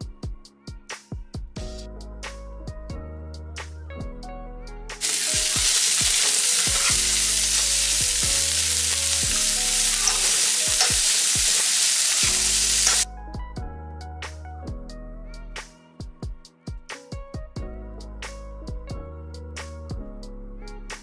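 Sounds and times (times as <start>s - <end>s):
background music: 0.0s - 21.0s
food sizzling in a frying pan: 5.0s - 13.0s.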